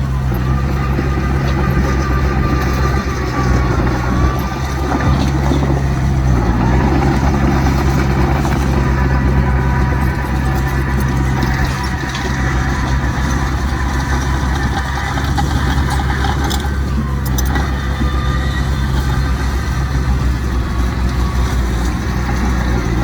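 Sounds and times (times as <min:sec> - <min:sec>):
heavy machinery diesel engines: 0:00.0 - 0:23.0.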